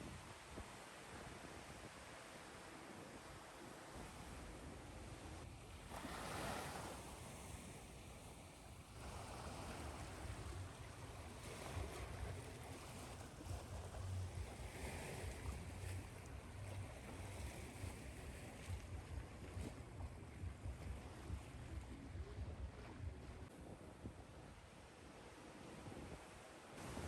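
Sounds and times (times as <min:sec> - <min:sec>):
ocean waves surf: 0:05.6 - 0:23.5, 0:24.6 - 0:27.0
low rumble: 0:15.3 - 0:23.5.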